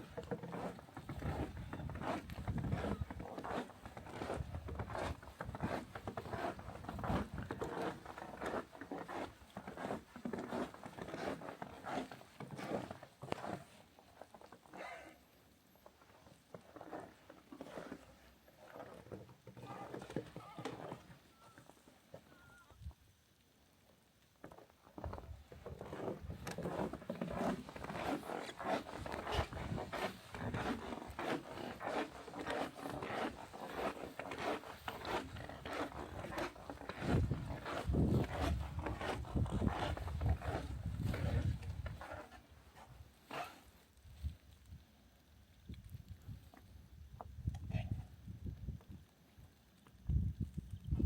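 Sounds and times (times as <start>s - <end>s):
footsteps crunching in snow: 25.9s - 42.3s.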